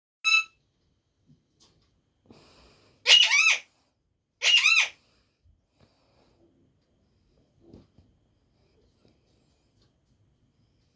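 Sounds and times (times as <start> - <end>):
parrot calling: 0.2 - 0.6, 3.0 - 3.7, 4.4 - 5.0.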